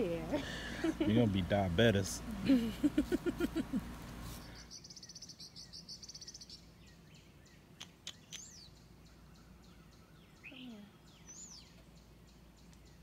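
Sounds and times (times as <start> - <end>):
songbird trilling: 4.4 - 13.0.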